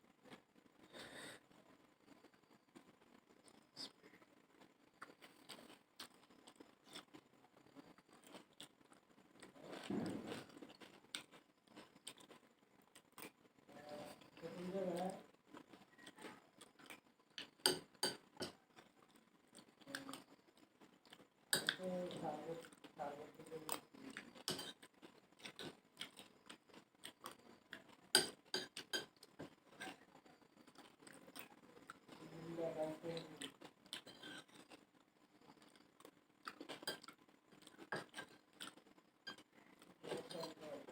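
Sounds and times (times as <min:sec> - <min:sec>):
chewing with small crunches: 0:00.1 - 0:40.9
spoon clinking against a plate: 0:17.6 - 0:18.6, 0:28.2 - 0:29.2.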